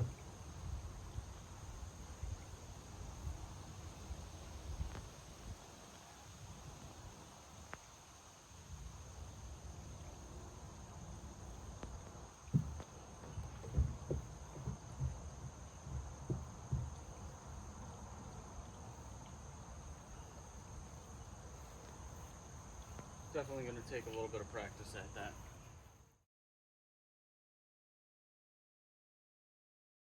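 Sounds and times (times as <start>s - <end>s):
insects chirring: 0.0s - 26.2s
low thumps and knocks: 12.5s - 17.4s.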